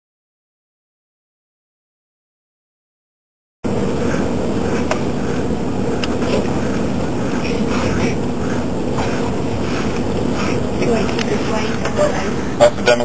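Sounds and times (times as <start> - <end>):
boat engine droning: 3.7 - 13.0
wind: 3.7 - 13.0.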